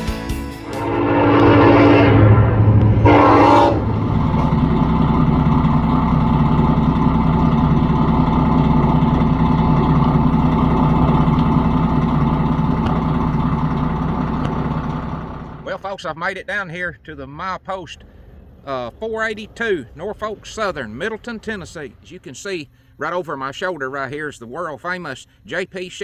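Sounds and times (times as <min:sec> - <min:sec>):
music: 0:00.0 - 0:02.0
vehicle engine and road noise: 0:00.7 - 0:16.1, 0:16.9 - 0:23.0.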